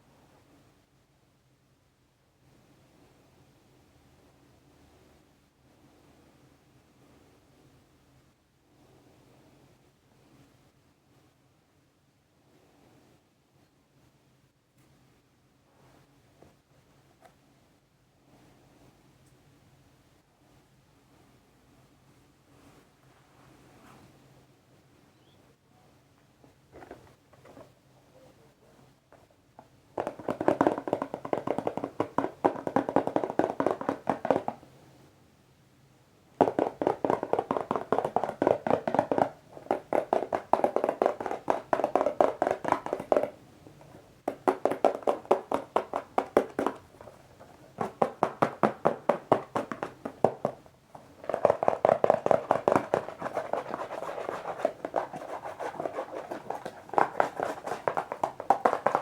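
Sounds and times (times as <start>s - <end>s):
fingertips tapping on a box: 30.0s - 34.6s, 36.4s - 59.0s.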